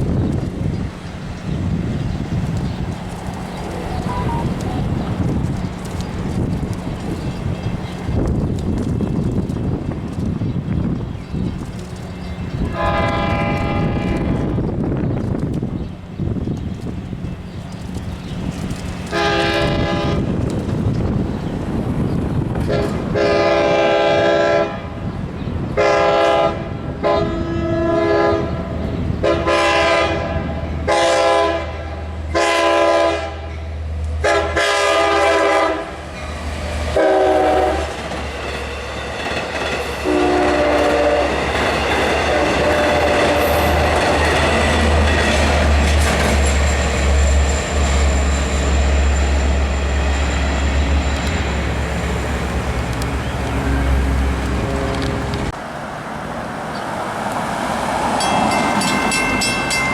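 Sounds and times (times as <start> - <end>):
train wheel clatter: 0.0 - 23.3, 36.1 - 53.6
train passing with rumble: 0.0 - 59.9
train horn blasts: 12.6 - 14.6, 19.1 - 20.3, 22.6 - 25.0, 25.7 - 33.6, 34.2 - 36.0, 37.0 - 38.0, 40.0 - 41.6, 42.2 - 44.7, 53.4 - 55.5.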